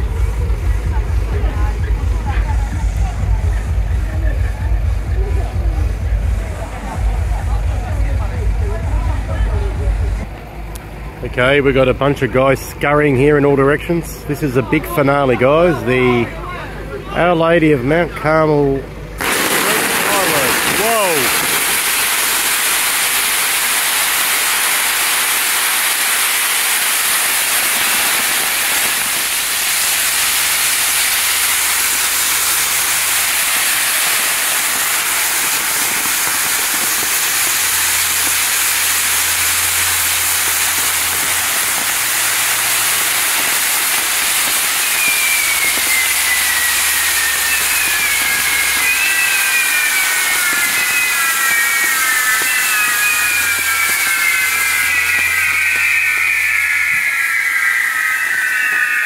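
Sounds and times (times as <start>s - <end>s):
firework sparks hissing: 19.2s - 59.0s
high whistles gliding downward: 19.2s - 59.0s.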